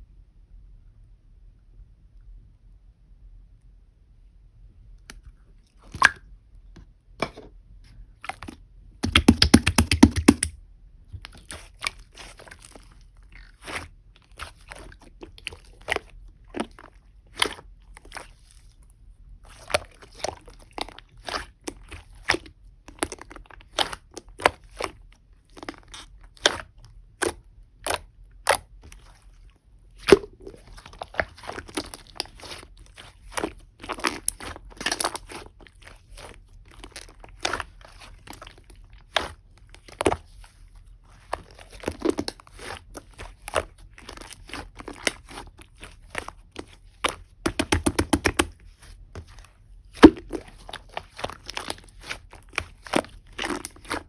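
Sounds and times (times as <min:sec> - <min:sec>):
slime clicking and popping: 0:09.0 - 0:10.5, 0:46.6 - 0:48.6, 0:50.0 - 0:54.0.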